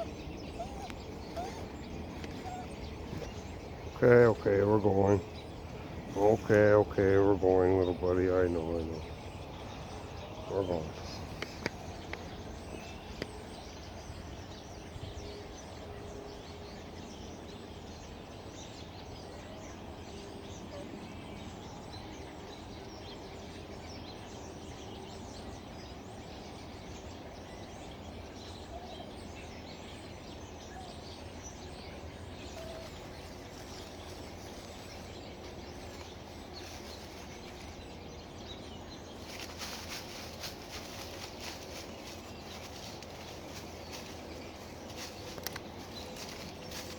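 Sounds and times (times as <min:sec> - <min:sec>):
crackly rustling noise: 0:00.0 - 0:04.4, 0:10.9 - 0:13.5, 0:32.4 - 0:46.9
forest birds singing: 0:00.0 - 0:46.9.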